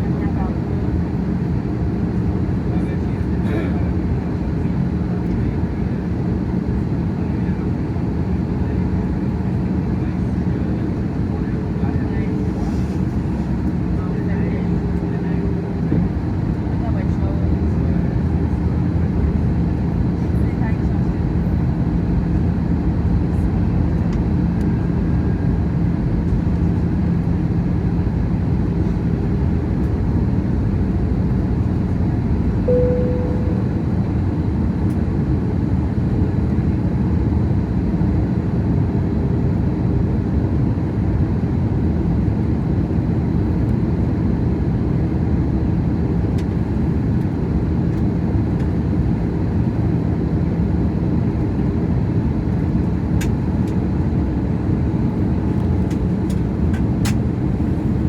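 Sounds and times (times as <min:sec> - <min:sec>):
airplane cabin engine rumble: 0:00.0 - 0:58.0
faint steady hum: 0:32.7 - 0:34.3
short tone: 0:32.7 - 0:34.3.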